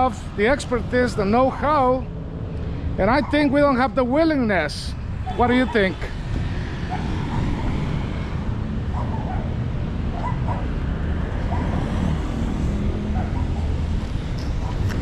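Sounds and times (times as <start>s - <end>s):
street traffic rumble: 0.0s - 15.0s
distant dog barking: 6.8s - 7.6s, 8.8s - 10.8s, 11.4s - 12.2s, 12.9s - 13.8s.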